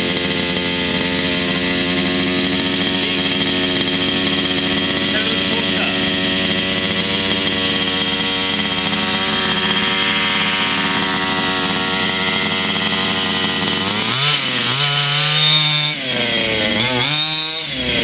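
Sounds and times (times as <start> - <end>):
two-stroke engine idling and revving: 0.0 - 18.0.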